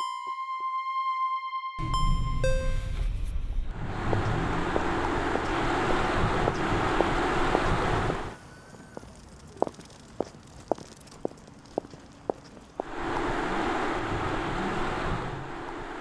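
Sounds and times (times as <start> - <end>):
electronic chime: 1.8 - 3.6
road and wind noise: 1.8 - 16.0.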